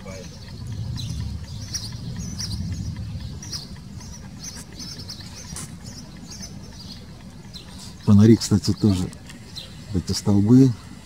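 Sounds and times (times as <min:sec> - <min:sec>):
small birds chirping: 0:00.0 - 0:11.0
low rumble: 0:00.4 - 0:04.5.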